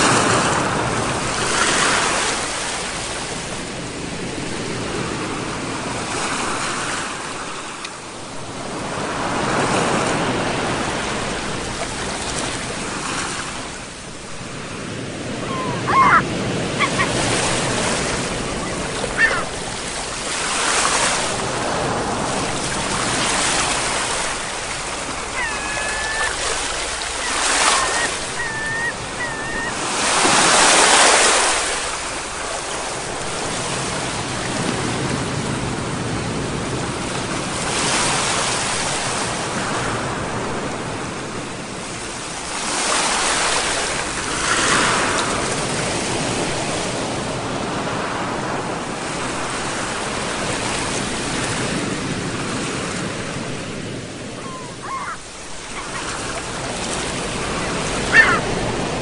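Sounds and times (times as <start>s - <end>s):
sea waves breaking: 0.0s - 59.0s
short high calls: 15.4s - 17.2s, 25.4s - 29.8s.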